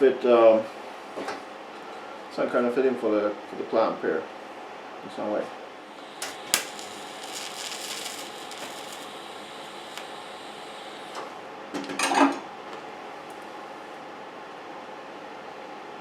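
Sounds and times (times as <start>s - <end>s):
faint steady hum: 5.9s - 11.4s.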